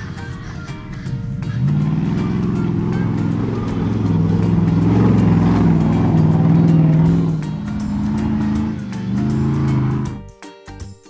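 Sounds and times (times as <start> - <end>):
engine sound effect revving: 0.0 - 10.2
background music with steady beat: 0.0 - 11.0.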